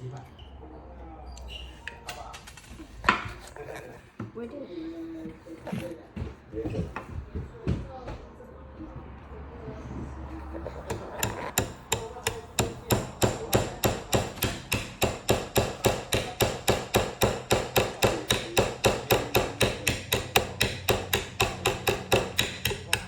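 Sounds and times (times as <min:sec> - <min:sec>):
hammer tapping nail into wood: 0:10.6 - 0:23.0.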